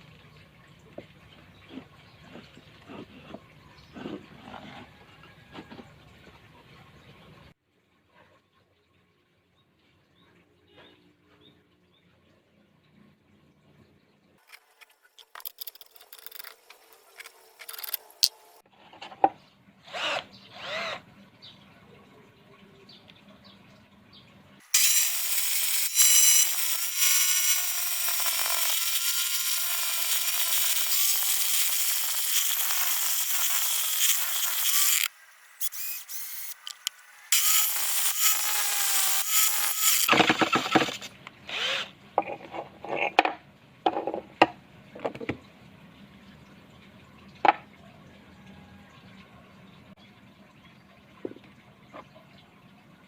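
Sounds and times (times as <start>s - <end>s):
electric drill motor whine: 24.8s - 40.2s
tool cutting spinning wood: 24.8s - 41.9s.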